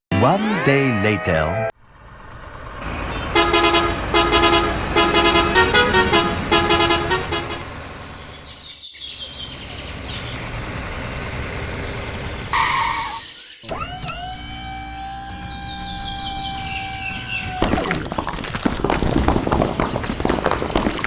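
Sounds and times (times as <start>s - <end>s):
vehicle horn honking a tune: 3.4s - 7.6s, 12.6s - 13.6s
engine running: 9.6s - 17.8s.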